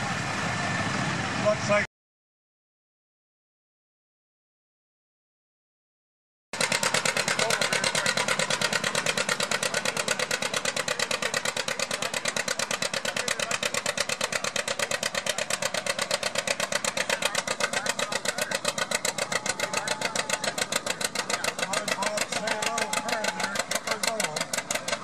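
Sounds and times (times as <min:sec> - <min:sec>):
tractor engine pulsing: 0:06.6 - 0:25.0.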